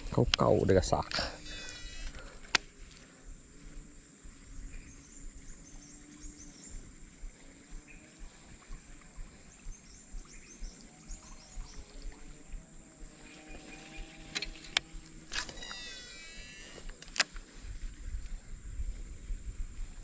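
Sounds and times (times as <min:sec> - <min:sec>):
small ticks: 0:00.0 - 0:18.5
insects droning: 0:00.0 - 0:20.0
faint bird chirps: 0:01.3 - 0:02.4, 0:04.2 - 0:12.6, 0:15.4 - 0:16.9.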